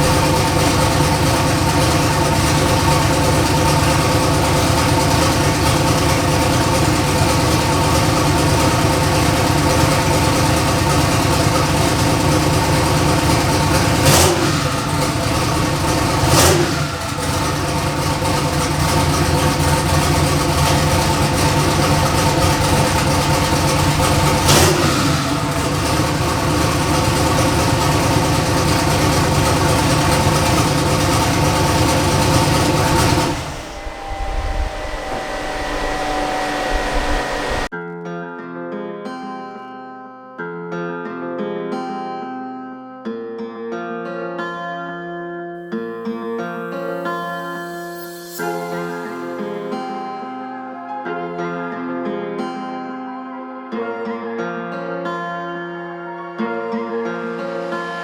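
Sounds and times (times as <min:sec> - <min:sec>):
car engine running: 0:00.0 - 0:37.7.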